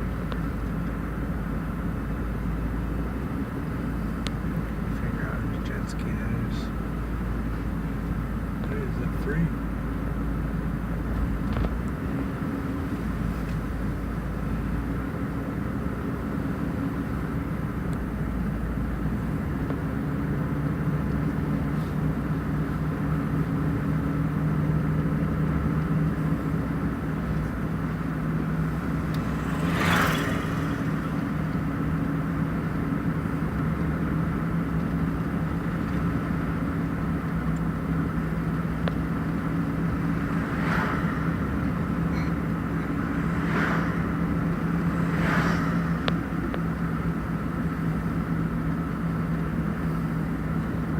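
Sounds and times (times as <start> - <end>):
vehicle engine and road hum: 0.0 - 50.9
brief whoosh: 42.1 - 46.6.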